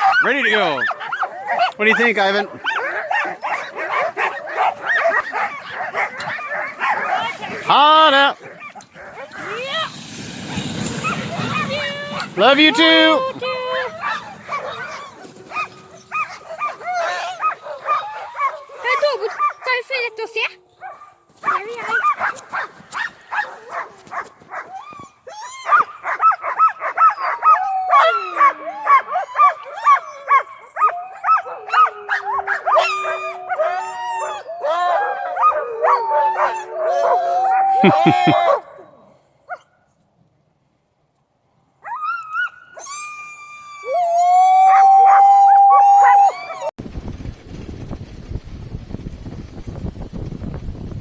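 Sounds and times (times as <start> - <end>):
dog drawn-out cry: 0.0 - 19.8, 20.8 - 38.6
sled dogs barking and yelping: 0.0 - 39.8, 41.8 - 46.7.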